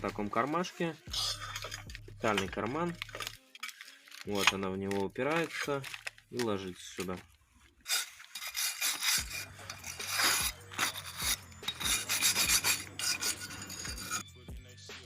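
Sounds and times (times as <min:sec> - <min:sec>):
coil spring scraping metal: 0:01.1 - 0:04.6, 0:07.8 - 0:14.2.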